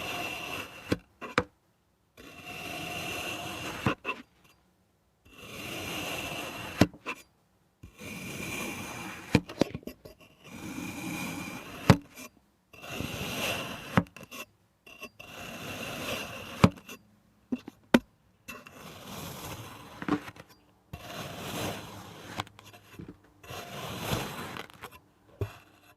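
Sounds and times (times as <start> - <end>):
blade cutting sand: 0.0 - 1.4, 2.2 - 4.3, 5.3 - 7.2, 7.9 - 9.5, 10.5 - 12.2, 12.8 - 14.4, 15.2 - 17.0, 18.5 - 25.9.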